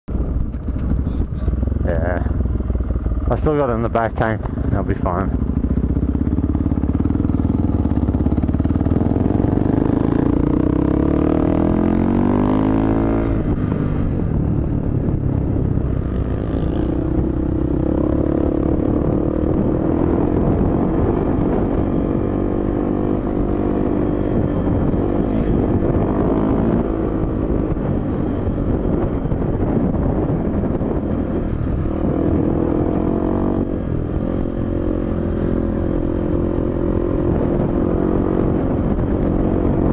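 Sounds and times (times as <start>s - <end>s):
dirt bike engine revving: 5.2s - 13.6s, 16.0s - 27.6s, 31.3s - 38.7s.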